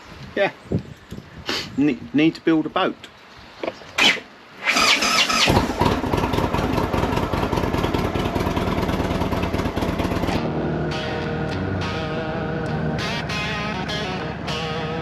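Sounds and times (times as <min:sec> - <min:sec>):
motorcycle engine idling: 0:05.6 - 0:10.4
guitar music: 0:09.7 - 0:15.0.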